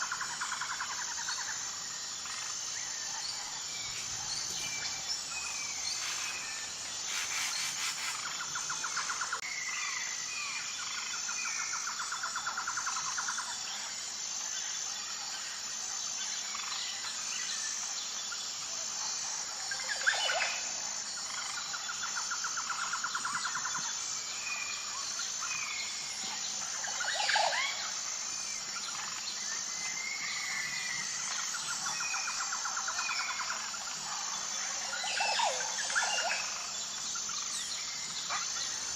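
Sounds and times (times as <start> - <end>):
pulsing insect chorus: 0.0 - 38.9
birds chirping: 2.2 - 9.2.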